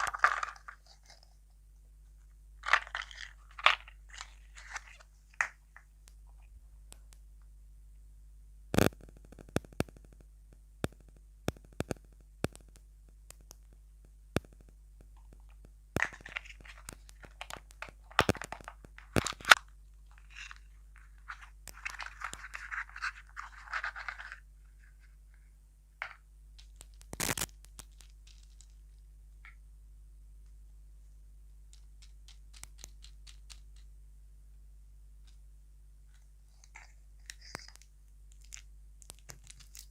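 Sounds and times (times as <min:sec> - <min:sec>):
sharp clicks and taps: 0:08.8 - 0:16.2, 0:31.7 - 0:33.9.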